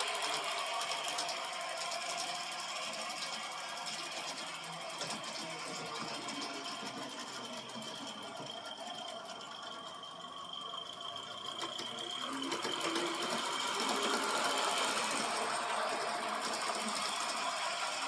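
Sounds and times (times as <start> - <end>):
model locomotive mechanical clatter: 0.0 - 18.0.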